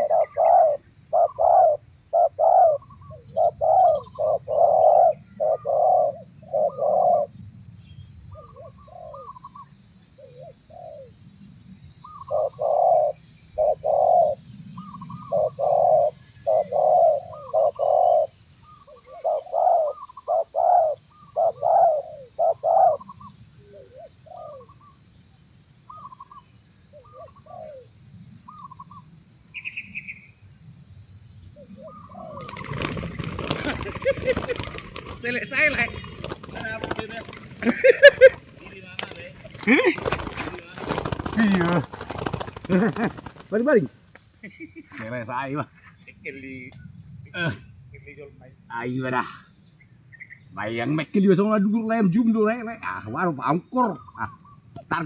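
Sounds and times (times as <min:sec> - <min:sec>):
doves cooing: 0:00.0 - 0:07.4, 0:08.3 - 0:11.3, 0:12.0 - 0:25.0, 0:25.8 - 0:30.2, 0:31.6 - 0:43.9.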